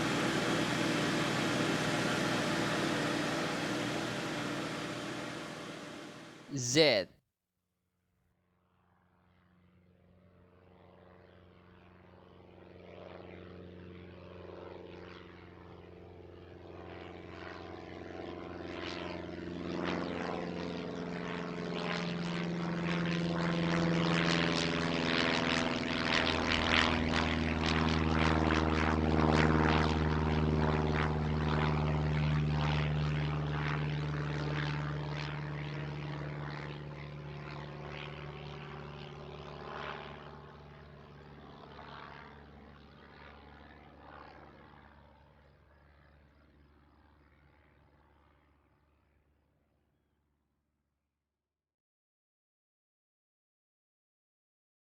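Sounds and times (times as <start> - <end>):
propeller airplane engine: 0.0 - 6.5, 24.0 - 42.2.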